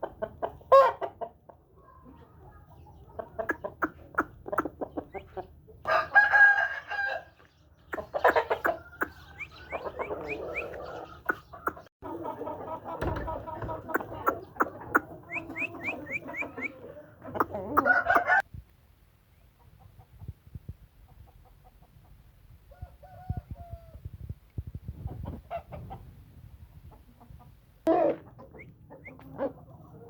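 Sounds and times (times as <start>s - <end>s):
chickens clucking: 0.0s - 18.5s, 19.3s - 24.0s, 24.6s - 30.0s
scattered knocks: 13.0s - 14.1s.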